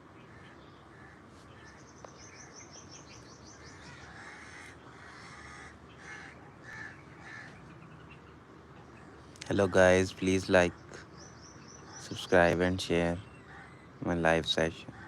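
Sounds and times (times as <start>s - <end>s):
crows cawing: 0.3s - 1.8s, 3.5s - 7.7s, 13.4s - 14.0s.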